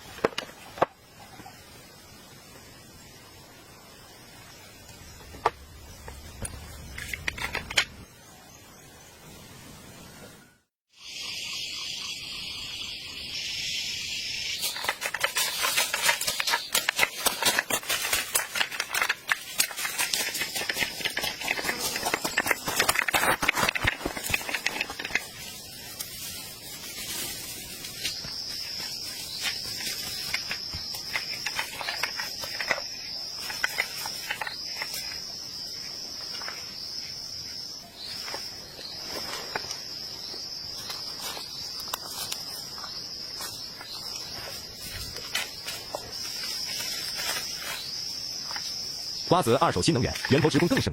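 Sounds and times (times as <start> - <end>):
insects trilling: 0.0 - 10.0, 10.9 - 50.9
clicks and crackles: 5.2 - 8.0, 14.6 - 26.2, 29.4 - 35.2.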